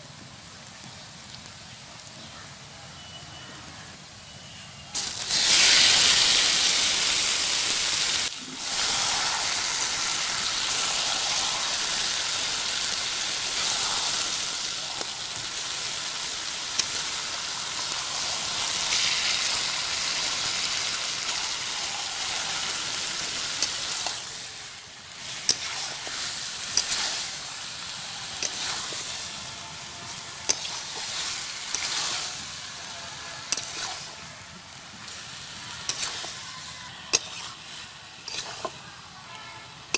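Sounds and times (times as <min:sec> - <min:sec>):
chicken sizzling in hot oil: 0:04.8 - 0:39.9
metal spatula scraping pan: 0:30.1 - 0:32.4, 0:33.5 - 0:34.2, 0:35.8 - 0:36.5, 0:37.1 - 0:38.8.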